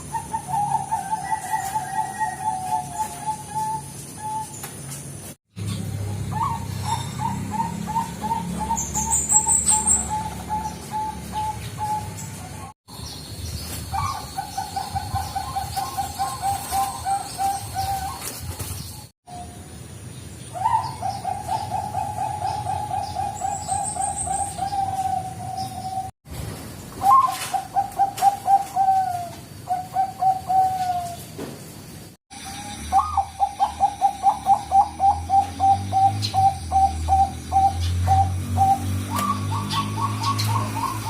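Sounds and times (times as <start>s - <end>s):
doves cooing: 0.0s - 4.6s, 5.9s - 12.8s, 13.9s - 19.4s, 20.6s - 26.1s, 27.0s - 31.4s, 32.3s - 41.0s
high-pitched bird chirp: 5.6s - 18.3s.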